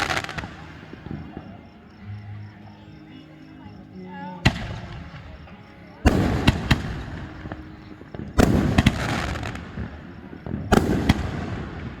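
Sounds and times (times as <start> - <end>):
fireworks bangs: 0.0 - 1.6, 4.4 - 12.0.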